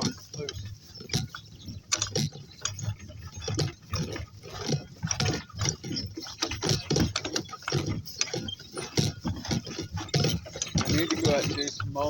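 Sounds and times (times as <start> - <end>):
donkey hooves plodding: 0.0 - 12.0
mechanical rattling and clinking: 0.0 - 12.0.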